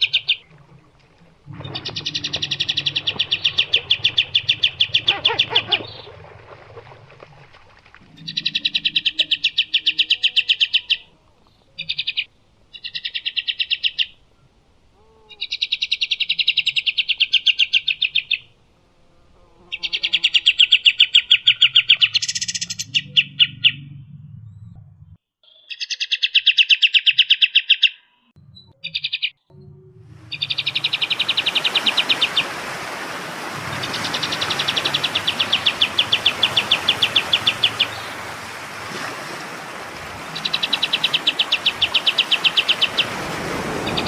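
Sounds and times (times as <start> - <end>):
songbird rattling trills: 33.8 - 38.3, 40.2 - 43.2.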